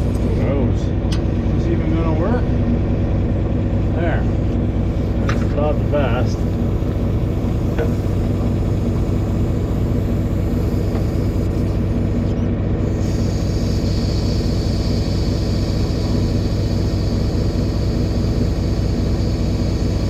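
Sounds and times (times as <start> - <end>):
air compressor motor running: 0.0 - 20.0
high hiss of air: 12.9 - 20.0.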